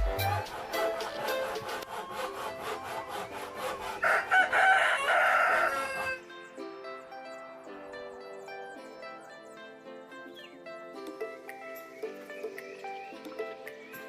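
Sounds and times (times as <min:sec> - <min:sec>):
hand saw cutting wood: 0:00.0 - 0:05.8
soft background music: 0:00.0 - 0:14.0
rooster crowing: 0:03.7 - 0:06.3.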